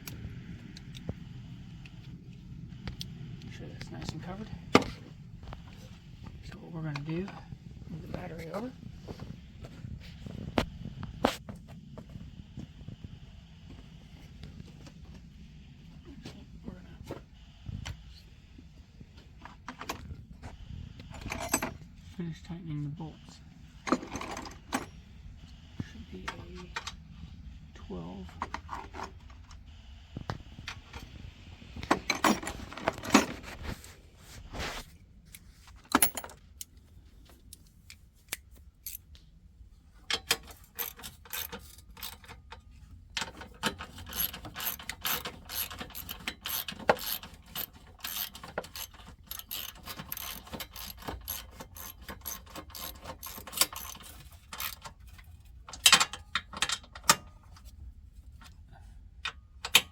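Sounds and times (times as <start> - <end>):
ratchet wrench clicking: 40.5 - 42.3, 43.6 - 54.8.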